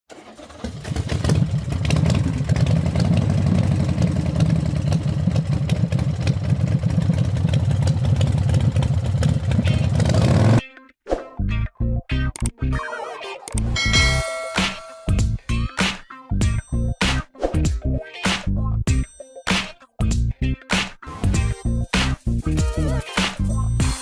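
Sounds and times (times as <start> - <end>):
small motorcycle engine running: 0.1 - 10.6.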